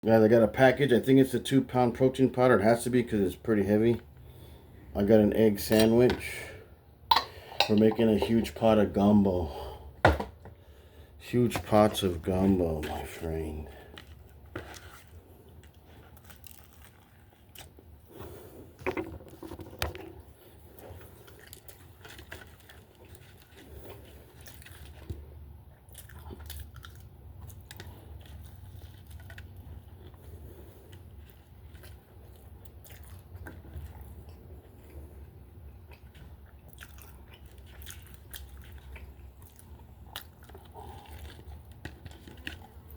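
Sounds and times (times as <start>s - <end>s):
person chewing food: 12.4s - 18.8s, 20.1s - 42.9s.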